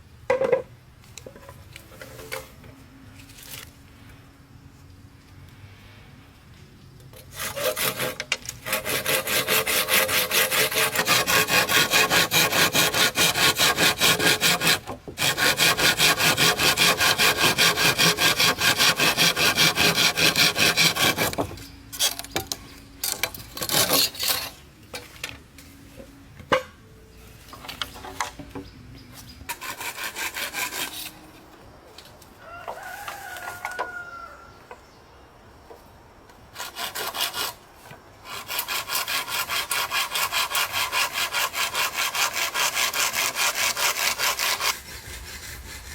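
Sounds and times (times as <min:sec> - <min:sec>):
light scraping and knocks: 0:00.3 - 0:04.2, 0:20.8 - 0:34.0
hand saw cutting wood: 0:07.2 - 0:24.6, 0:29.4 - 0:31.2, 0:36.5 - 0:37.6, 0:38.2 - 0:45.9.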